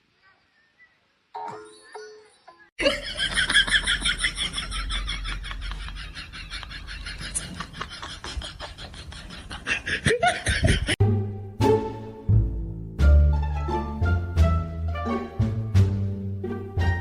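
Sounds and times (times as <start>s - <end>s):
person laughing hard: 2.8s - 11.0s.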